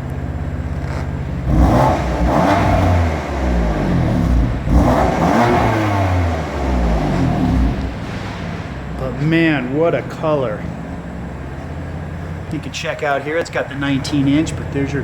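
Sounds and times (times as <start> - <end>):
car exhaust revving from idle: 0.0 - 9.7.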